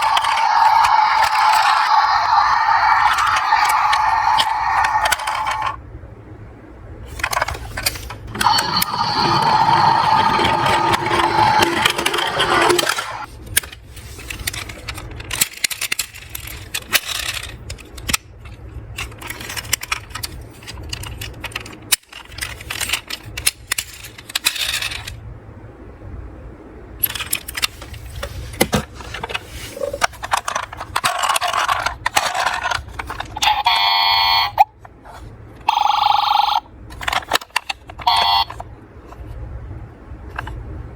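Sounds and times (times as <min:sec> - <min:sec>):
metal toy cars clinking: 0:14.2 - 0:18.1, 0:19.0 - 0:25.2.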